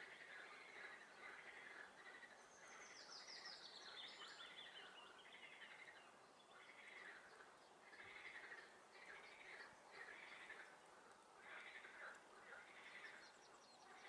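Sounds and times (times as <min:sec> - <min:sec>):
faint frog chorus: 0:00.0 - 0:02.9, 0:05.5 - 0:10.8, 0:11.4 - 0:14.0.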